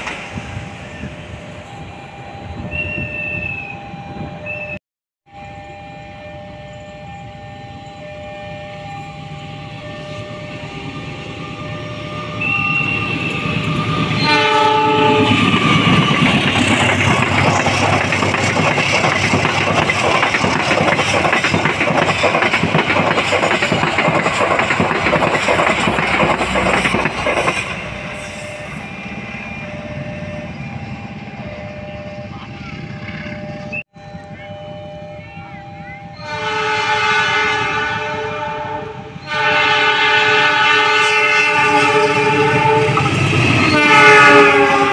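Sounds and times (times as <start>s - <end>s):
train passing with wheel noise: 0.0s - 44.9s
train horn: 4.4s - 16.0s, 35.4s - 44.9s.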